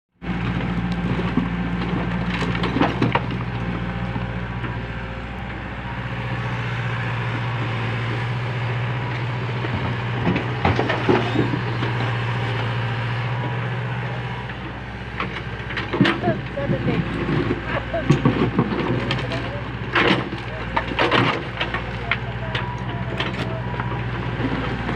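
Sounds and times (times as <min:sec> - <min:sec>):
backhoe engine running: 0:00.2 - 0:24.9
sharp knocks and cracks: 0:17.5 - 0:22.3.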